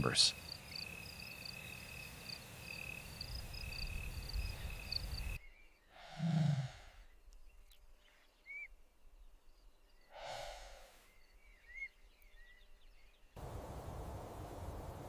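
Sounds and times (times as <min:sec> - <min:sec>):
soft whoosh: 0:10.1 - 0:11.2.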